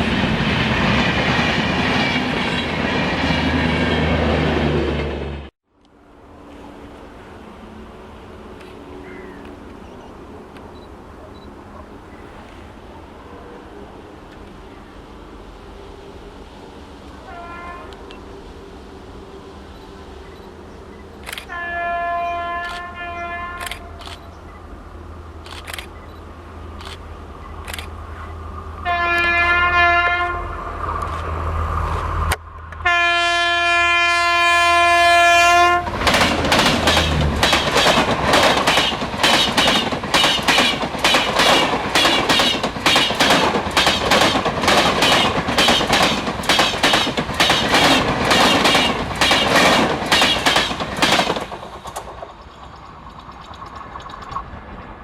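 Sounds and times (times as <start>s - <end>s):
locomotive hum: 0.0s - 55.0s
train horn blasts: 17.2s - 18.4s, 21.4s - 24.0s, 28.2s - 30.7s, 32.8s - 36.0s
wheels clacking over rail joints: 35.3s - 55.0s.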